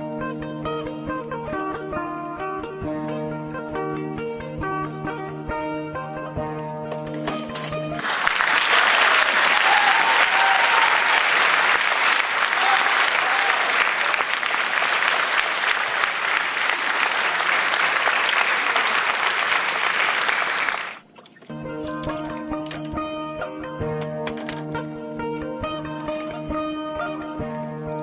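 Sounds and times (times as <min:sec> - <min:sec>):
crowd applauding: 0:08.0 - 0:21.0.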